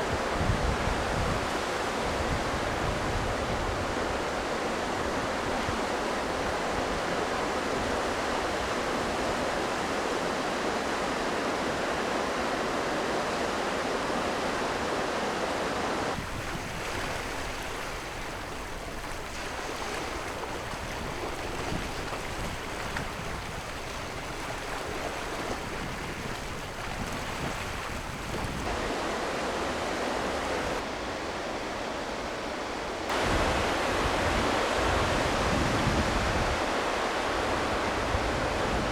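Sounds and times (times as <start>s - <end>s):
waves rushing: 12.3s - 38.9s.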